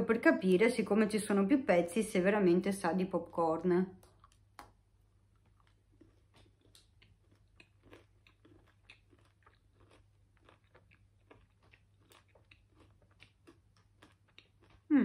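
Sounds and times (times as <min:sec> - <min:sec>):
chocolate crunching: 0:04.0 - 0:14.9.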